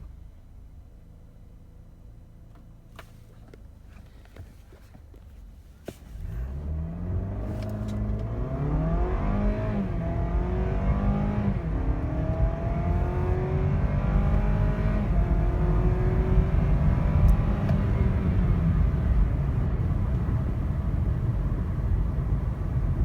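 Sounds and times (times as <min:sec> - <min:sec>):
car engine accelerating hard: 0:06.1 - 0:23.0.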